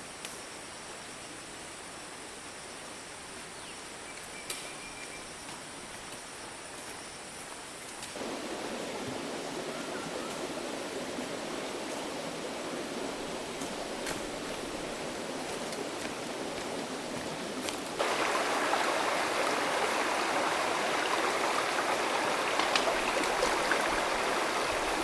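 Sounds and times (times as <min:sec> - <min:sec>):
stream flowing: 0:08.2 - 0:25.0.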